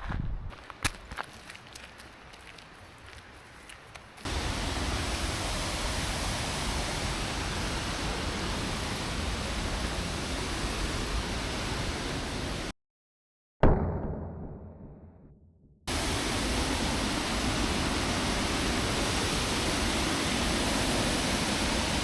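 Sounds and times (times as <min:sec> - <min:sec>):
waterfall rushing: 0:04.3 - 0:12.7, 0:15.9 - 0:22.0.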